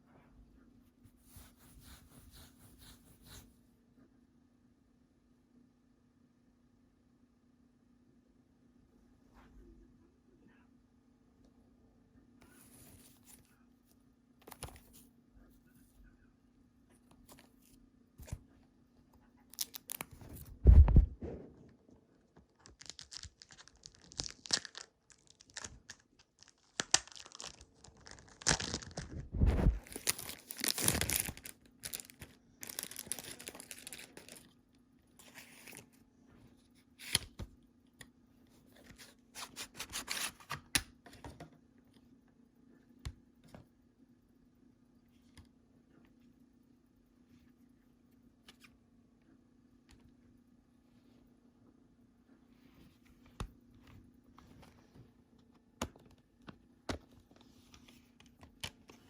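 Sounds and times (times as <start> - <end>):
plastic wrapping tearing and crinkling: 22.5 - 29.2, 29.8 - 34.4.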